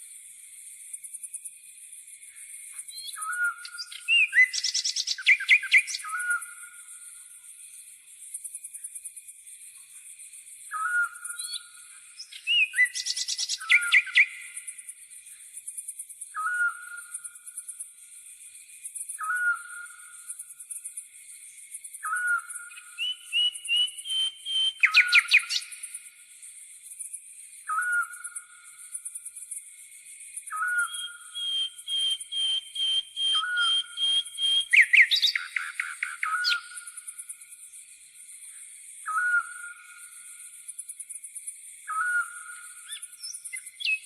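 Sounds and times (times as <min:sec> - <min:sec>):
trilled bird song: 0:02.8 - 0:06.9, 0:10.6 - 0:14.9, 0:21.9 - 0:26.0, 0:27.5 - 0:29.2, 0:30.3 - 0:40.7, 0:41.7 - 0:44.0.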